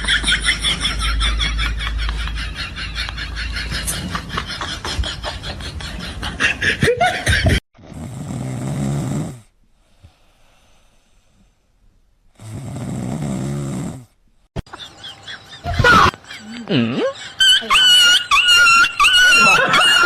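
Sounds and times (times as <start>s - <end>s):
pet snoring: 7.8s - 9.5s, 12.4s - 14.1s.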